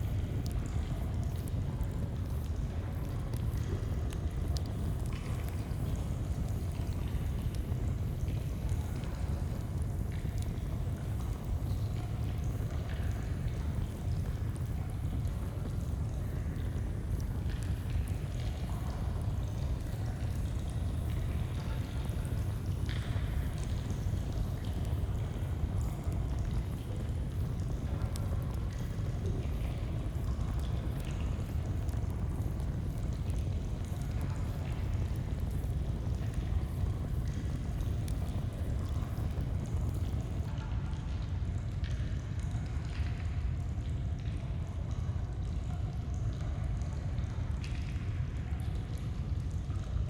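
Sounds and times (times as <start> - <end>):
campfire crackling and popping: 22.0 - 40.5.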